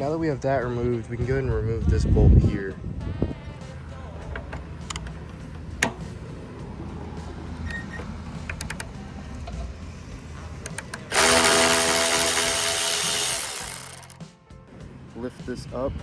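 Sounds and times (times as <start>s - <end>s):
tools clicking: 7.7s - 8.9s, 10.6s - 14.2s
power drill running: 10.7s - 14.2s.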